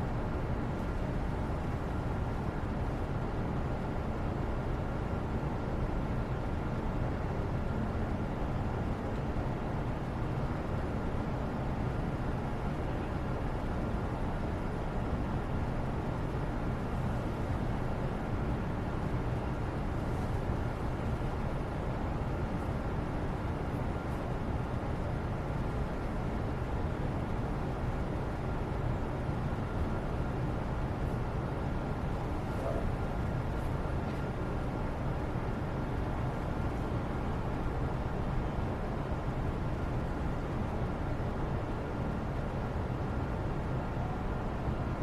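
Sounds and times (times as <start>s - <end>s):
faint steady tone: 9.2s - 45.0s.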